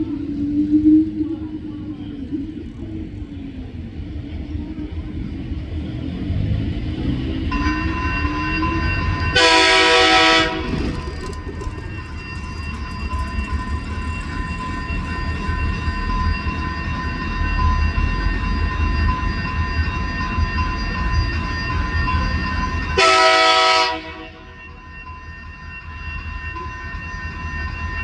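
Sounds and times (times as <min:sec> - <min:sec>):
diesel locomotive rumbling past: 0:00.0 - 0:28.0
steady high tone: 0:07.1 - 0:23.0
train air horn blast: 0:09.2 - 0:11.0, 0:23.0 - 0:24.5.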